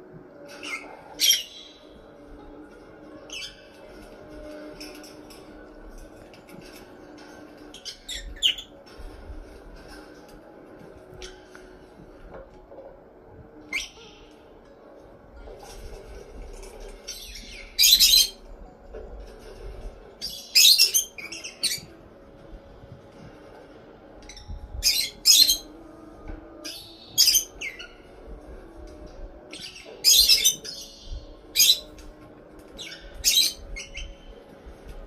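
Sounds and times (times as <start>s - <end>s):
parrot squawking: 0.6s - 1.9s, 7.7s - 8.7s, 17.2s - 18.4s, 20.2s - 21.9s, 24.8s - 25.7s, 26.7s - 28.0s, 29.5s - 31.9s, 32.8s - 34.2s.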